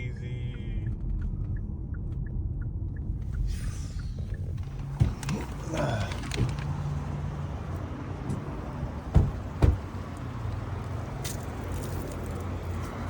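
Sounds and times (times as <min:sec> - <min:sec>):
car engine running: 0:00.0 - 0:12.9
sharp thumps: 0:09.1 - 0:10.0.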